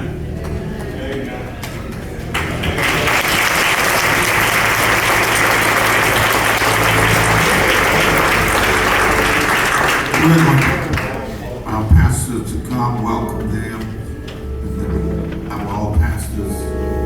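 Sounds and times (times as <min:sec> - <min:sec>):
congregation applauding: 0:02.3 - 0:11.6.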